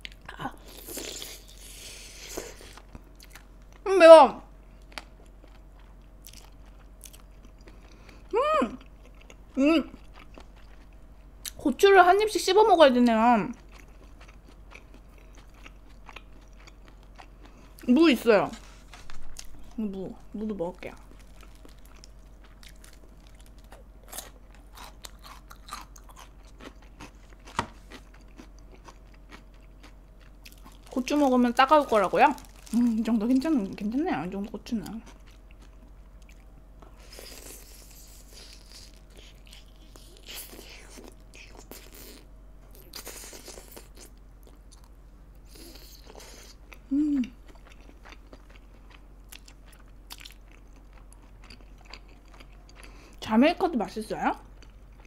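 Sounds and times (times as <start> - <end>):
chewing crisp radish: 0.0 - 3.8, 4.8 - 11.6, 13.0 - 33.8, 34.6 - 53.2
person humming: 8.3 - 8.8, 46.9 - 47.4
biting and chewing: 20.9 - 33.0, 45.6 - 53.2.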